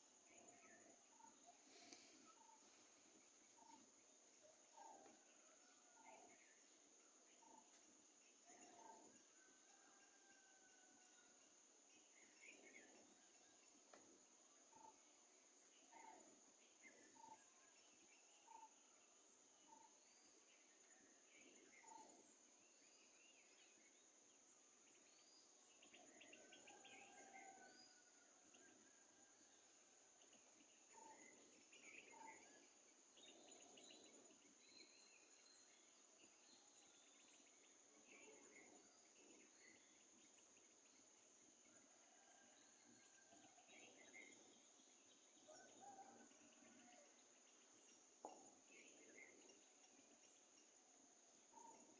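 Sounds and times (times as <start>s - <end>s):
insects trilling: 0.0s - 5.4s.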